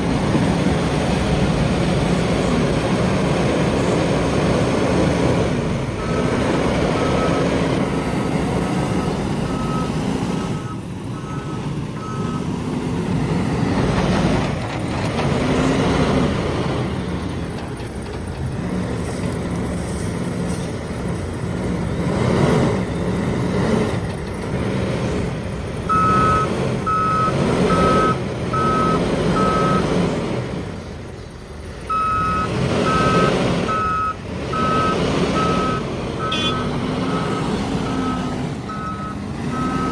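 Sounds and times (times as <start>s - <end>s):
diesel machine engine revving: 0.0s - 39.9s
reversing alarm beeping: 6.0s - 7.6s, 8.8s - 12.5s, 25.9s - 29.9s, 31.9s - 39.9s.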